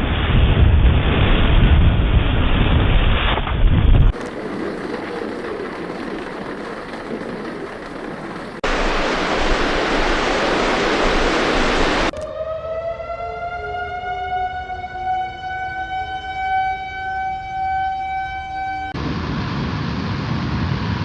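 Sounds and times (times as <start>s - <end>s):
steady rushing noise: 0.0s - 12.1s
warning siren winding up: 12.1s - 19.0s.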